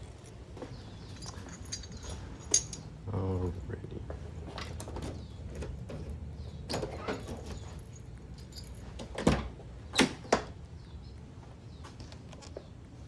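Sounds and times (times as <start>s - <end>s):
metal hooks clinking: 1.0s - 2.9s, 6.7s - 9.1s.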